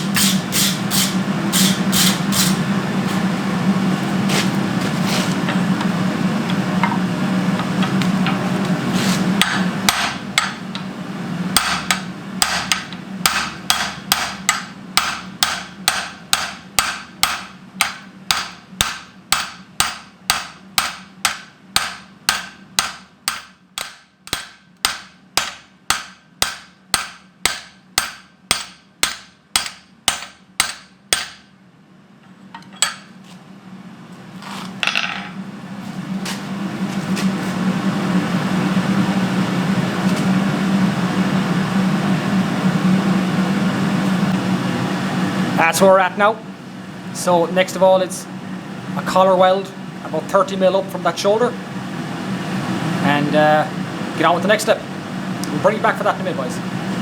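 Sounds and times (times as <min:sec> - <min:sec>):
steady hum: 0:00.0 - 0:57.0
hammer striking steel on anvil: 0:09.4 - 0:10.9, 0:11.6 - 0:31.5, 0:32.6 - 0:33.1.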